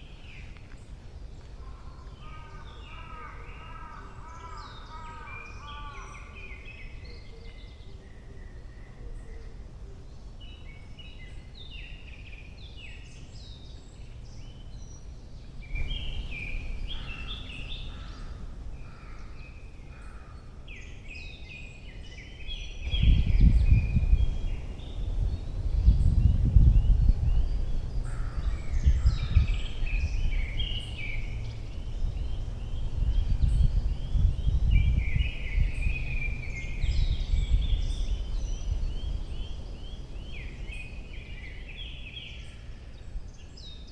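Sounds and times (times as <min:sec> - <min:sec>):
songbirds singing: 0:00.0 - 0:43.9
wind buffeting microphone: 0:10.4 - 0:21.8, 0:22.4 - 0:43.9.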